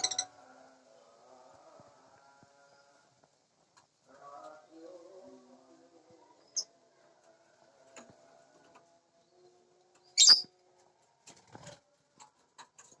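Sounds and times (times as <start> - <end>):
lovebirds chirping: 10.0 - 10.5.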